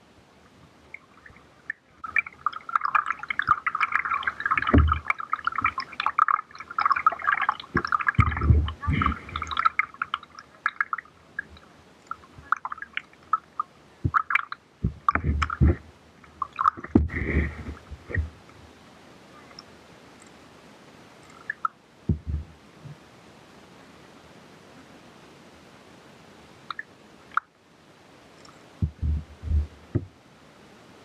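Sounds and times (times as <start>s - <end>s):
water splashing and gurgling: 0.9s - 18.5s, 21.2s - 22.6s, 28.7s - 30.1s
low thumps: 7.8s - 9.5s, 14.8s - 15.9s, 16.8s - 18.4s, 22.1s - 22.6s, 28.8s - 30.2s.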